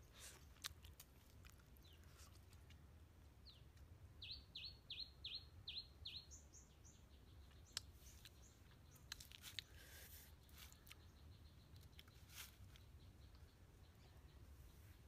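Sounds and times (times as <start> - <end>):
bird singing faintly: 3.4 - 15.0.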